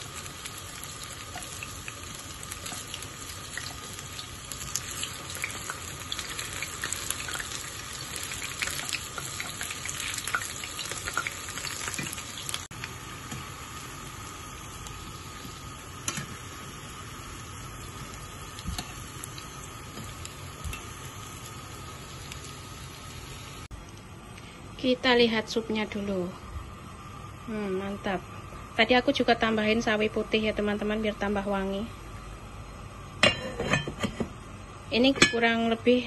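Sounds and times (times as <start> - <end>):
fritters sizzling in hot oil: 0.0 - 23.7.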